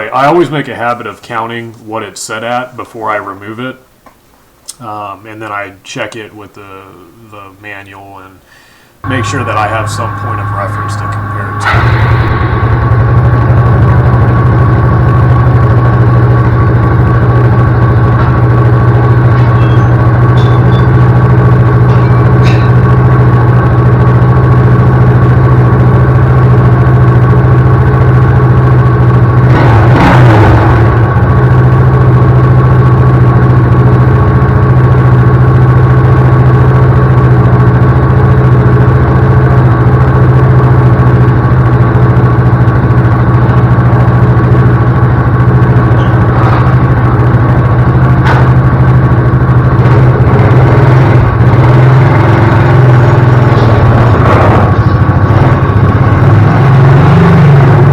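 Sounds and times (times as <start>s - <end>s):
brief noisy disturbance: 9.0s - 21.1s
quad bike engine idling: 14.0s - 24.8s, 30.6s - 57.9s.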